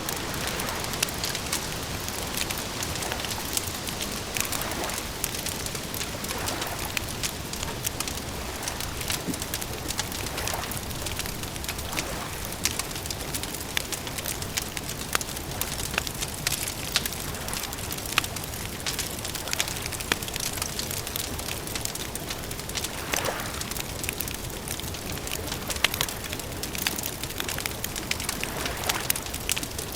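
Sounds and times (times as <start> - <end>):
wood fire crackling: 0.0 - 29.9.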